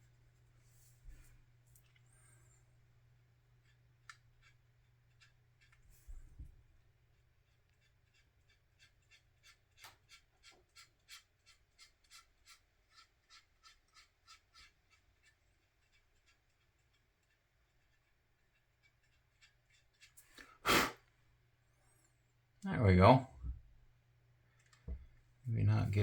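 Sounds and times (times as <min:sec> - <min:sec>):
pastel scratching on plastic: 0:07.5 - 0:20.3
low steady hum: 0:22.7 - 0:26.0.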